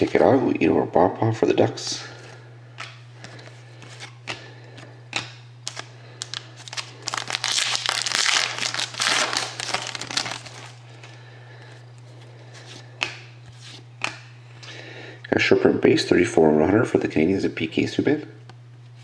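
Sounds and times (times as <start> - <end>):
cards clicking: 3.8 - 10.5
wrapper crinkling: 5.6 - 10.8.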